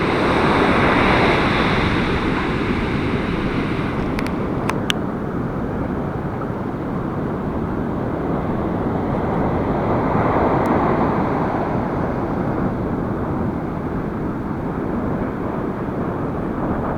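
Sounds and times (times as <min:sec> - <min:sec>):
surf breaking: 0:00.0 - 0:04.9
wind buffeting microphone: 0:00.0 - 0:16.9.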